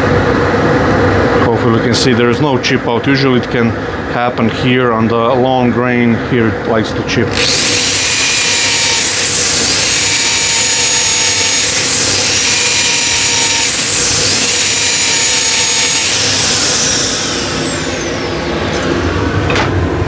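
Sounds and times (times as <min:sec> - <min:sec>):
wood lathe running: 0:07.3 - 0:19.5
high whine: 0:07.3 - 0:20.0.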